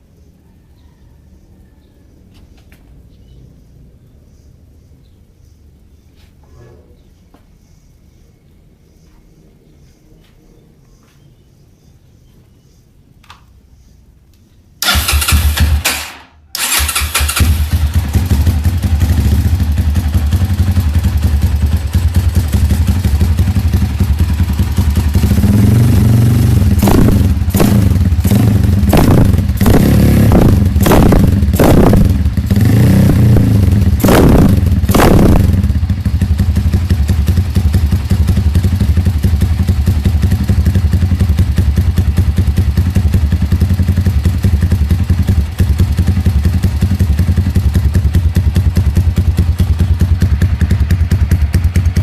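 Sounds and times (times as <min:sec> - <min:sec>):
motorcycle idling and revving: 0:14.8 - 0:52.0.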